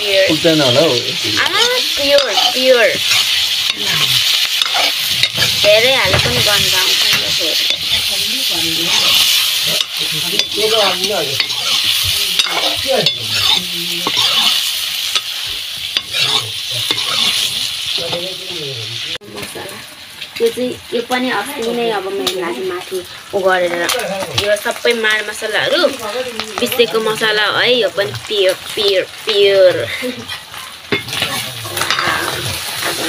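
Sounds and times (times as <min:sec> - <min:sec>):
chicken sizzling in oil: 0:00.0 - 0:33.0
metal ladle scraping wok: 0:01.2 - 0:18.0, 0:30.2 - 0:33.0.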